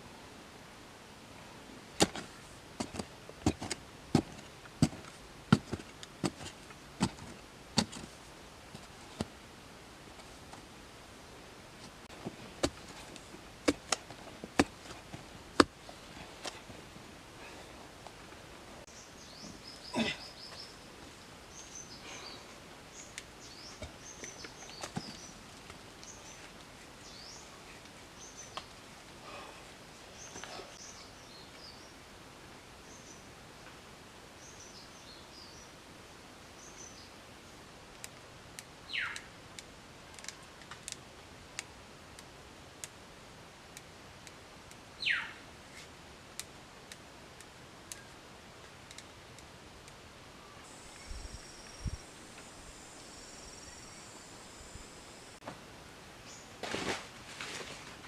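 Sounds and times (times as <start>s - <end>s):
faint outdoor hiss: 0.0s - 58.0s
birds chirping: 18.9s - 29.5s.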